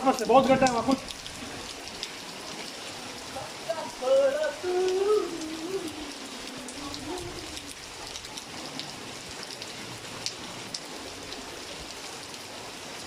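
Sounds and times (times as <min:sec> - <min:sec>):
rain falling on water: 0:00.0 - 0:13.0
person's drawn-out voice: 0:03.3 - 0:07.8.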